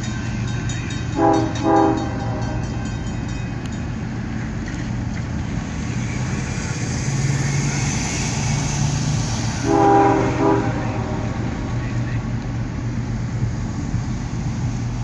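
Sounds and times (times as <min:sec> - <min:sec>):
locomotive engine drone: 0:00.0 - 0:15.0
train horn: 0:01.1 - 0:03.0, 0:09.6 - 0:11.8
high hiss: 0:05.5 - 0:15.0.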